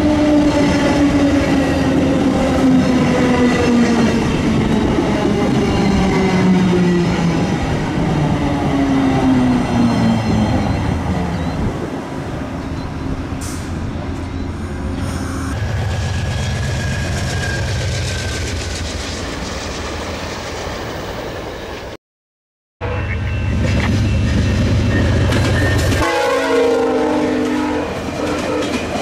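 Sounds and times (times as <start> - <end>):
train wheels on rails: 0.0 - 21.9, 23.3 - 29.0
wheels squealing: 12.5 - 20.9
high steady tone: 14.2 - 15.7.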